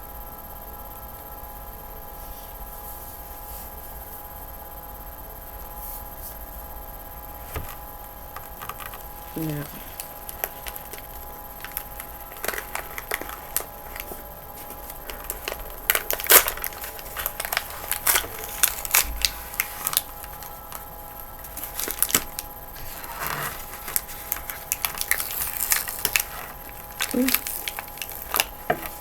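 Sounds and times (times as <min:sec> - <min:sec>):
hard chunks crunching and cracking: 0:07.4 - 0:29.0.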